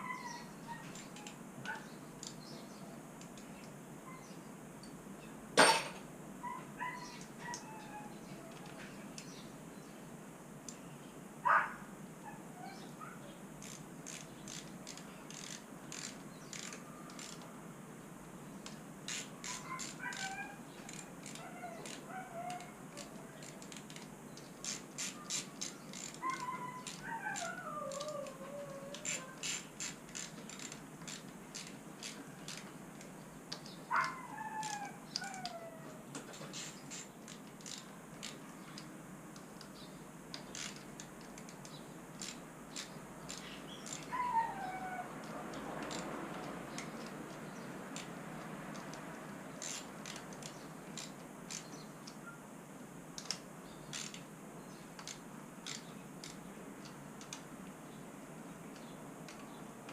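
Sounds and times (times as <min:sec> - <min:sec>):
ratchet wrench clicking: 0:13.6 - 0:17.4, 0:29.0 - 0:32.6, 0:36.6 - 0:38.4, 0:49.6 - 0:51.7.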